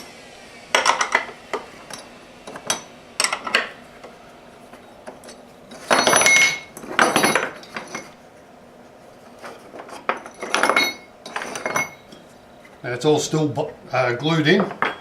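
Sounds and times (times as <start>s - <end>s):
metal clamps clinking and clattering: 5.0s - 8.2s, 9.4s - 12.2s, 14.6s - 15.0s.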